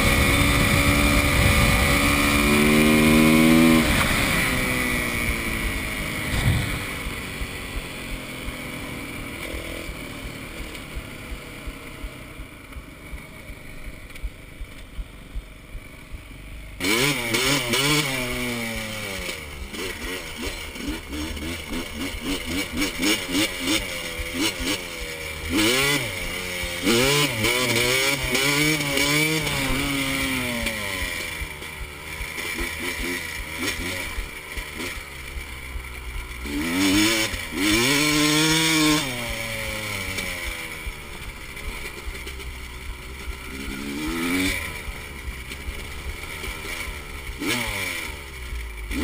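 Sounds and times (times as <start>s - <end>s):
dirt bike engine accelerating: 0.0s - 49.0s
dirt bike engine revving: 0.0s - 49.0s.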